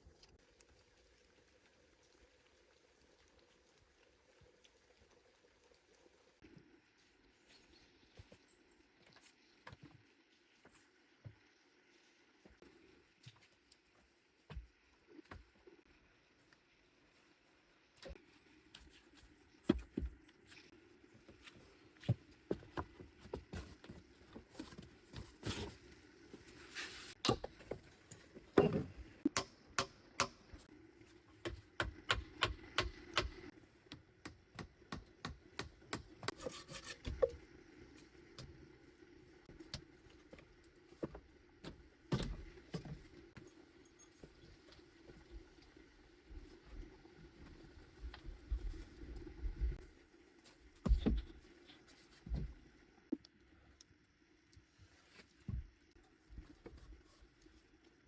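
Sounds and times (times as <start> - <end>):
knocks and taps from hand work: 31.4 - 36.4.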